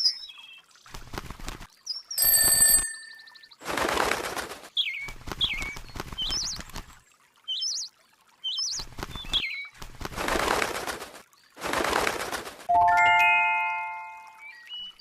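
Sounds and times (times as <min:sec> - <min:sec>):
wings flapping: 0:00.8 - 0:01.8, 0:03.6 - 0:07.0, 0:08.8 - 0:12.7
small bird chirping: 0:04.8 - 0:06.6.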